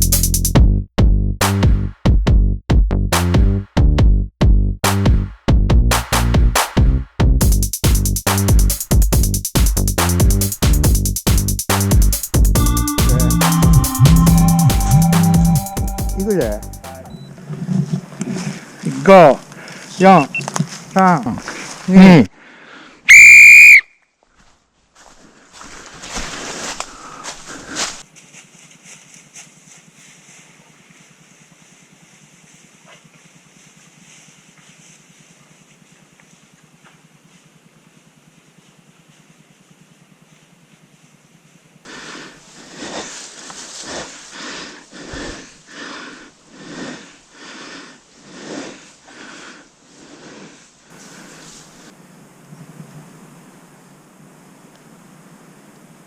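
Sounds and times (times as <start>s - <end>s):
loud whistle: 12.6s - 17.0s, 23.1s - 24.0s
person breathing hard: 21.5s - 23.1s, 26.8s - 28.0s, 41.9s - 43.2s, 43.8s - 51.5s
footsteps: 24.3s - 37.6s.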